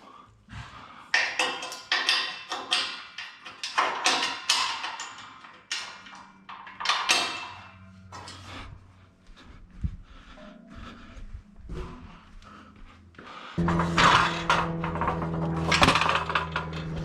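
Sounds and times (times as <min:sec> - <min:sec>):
metal scaffolding clanking: 0:01.2 - 0:08.8, 0:13.6 - 0:17.0.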